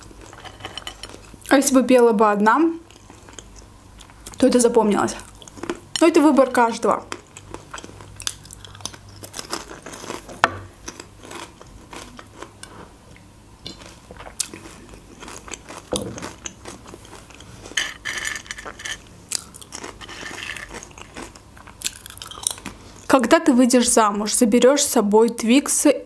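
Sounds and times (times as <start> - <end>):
crunching of dry snacks: 7.1 - 12.5, 13.7 - 17.4, 19.3 - 22.8.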